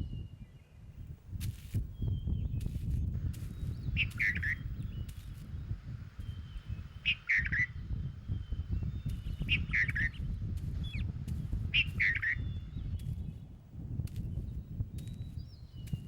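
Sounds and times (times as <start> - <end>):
steady low rumble: 0.9 - 16.0
bird harsh calls: 3.6 - 5.0, 6.3 - 11.1, 11.7 - 13.0.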